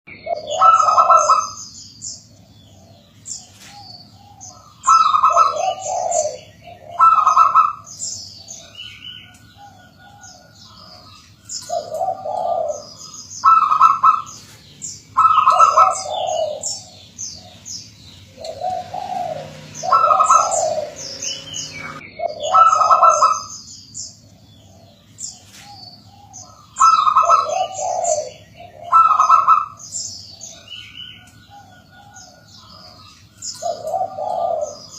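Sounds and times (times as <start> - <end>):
dove cooing: 0.1 - 23.6, 24.2 - 34.9
high bird chirps: 3.0 - 24.2.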